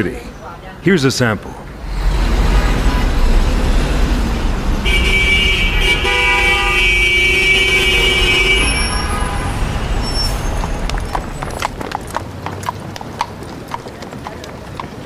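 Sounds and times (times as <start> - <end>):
traffic rumble: 0.0 - 15.0
car horn: 4.6 - 11.4
horse hooves clip-clopping: 10.0 - 15.0.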